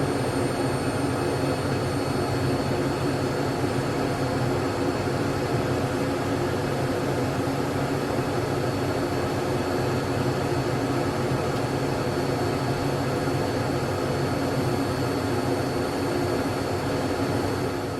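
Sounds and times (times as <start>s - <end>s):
jet airliner cabin drone: 0.0s - 17.9s.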